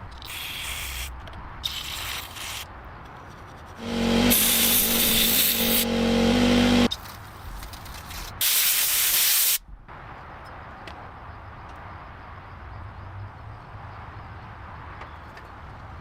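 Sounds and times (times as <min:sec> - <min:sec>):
power tool humming: 0:03.8 - 0:06.9
spraying hiss: 0:03.8 - 0:06.9.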